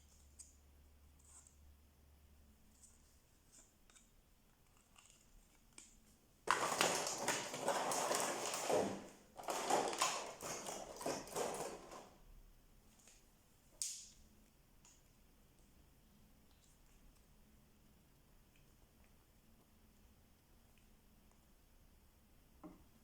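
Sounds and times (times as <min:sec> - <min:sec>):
packaging crinkling: 0:06.5 - 0:12.1.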